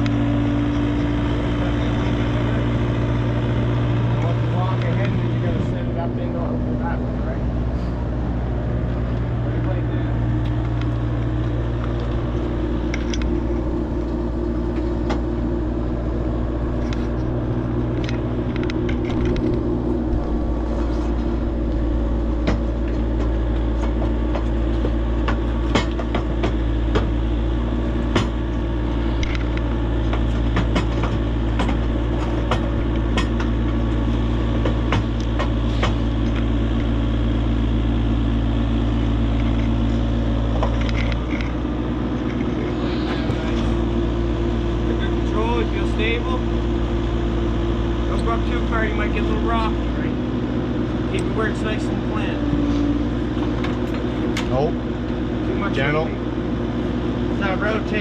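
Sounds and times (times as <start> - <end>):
vehicle engine running: 0.0 - 58.0
metal clanks and knocks: 16.7 - 27.2, 29.2 - 36.4.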